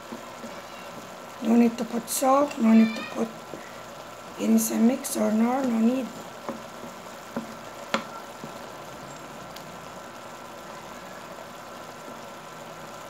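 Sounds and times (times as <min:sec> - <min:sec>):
wooden spoon knocking pan: 0:00.0 - 0:08.7
food sizzling in sauce: 0:00.0 - 0:13.0.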